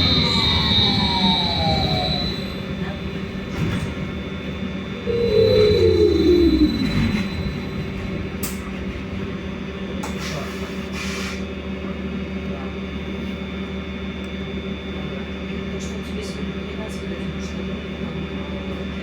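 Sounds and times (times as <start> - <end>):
falling motor whine: 0.0 - 4.0, 4.9 - 8.7
electrical hum: 0.0 - 8.8.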